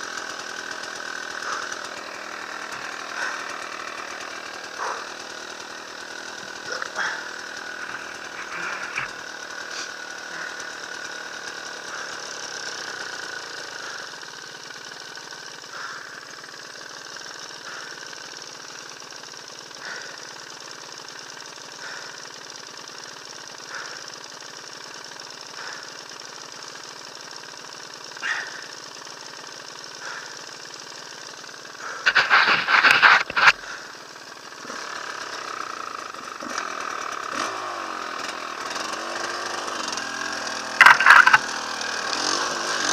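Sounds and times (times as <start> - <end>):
dirt bike engine running: 0.0 - 42.9
loud rough engine burst: 1.2 - 12.3.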